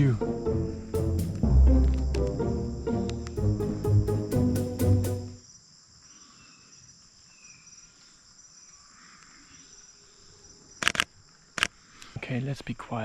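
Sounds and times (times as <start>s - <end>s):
background music: 0.0s - 5.4s.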